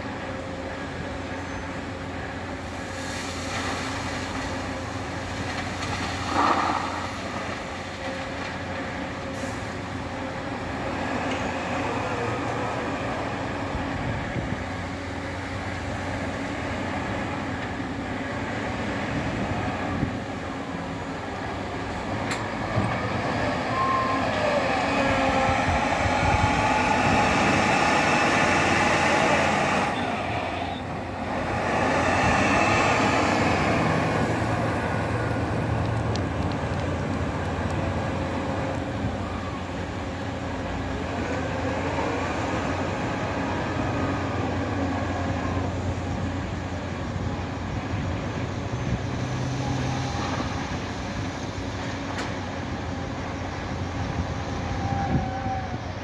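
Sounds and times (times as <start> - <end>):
diesel truck engine droning: 0.0 - 56.0.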